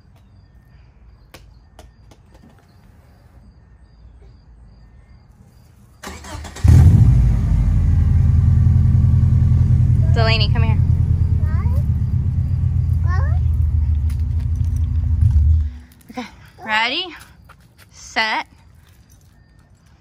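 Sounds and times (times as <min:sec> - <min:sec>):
car engine idling: 0:06.2 - 0:15.9.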